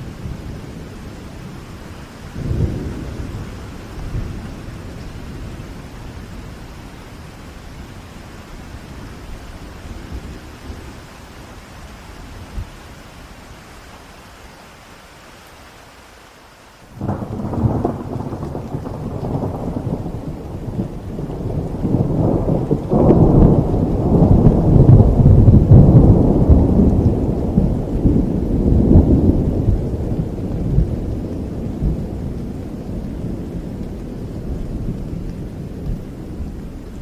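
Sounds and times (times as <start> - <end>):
thunderclap and rumble: 0.0 - 7.0, 17.0 - 37.0
steady rain: 0.0 - 37.0.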